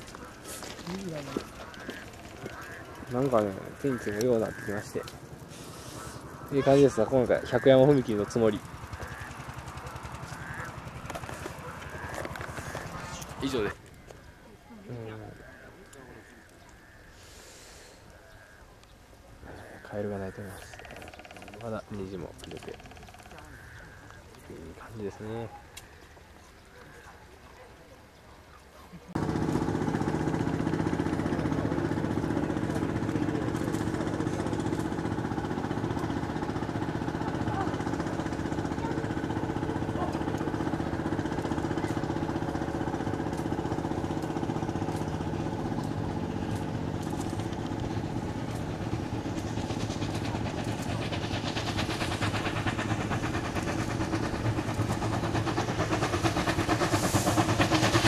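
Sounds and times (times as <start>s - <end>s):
engine running: 0.0s - 14.2s, 29.1s - 58.0s.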